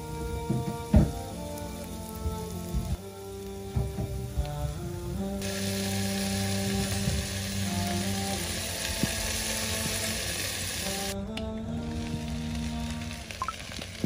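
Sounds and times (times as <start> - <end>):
background music: 0.0 - 14.0
meat sizzling in a pot: 5.4 - 11.2, 11.9 - 14.0.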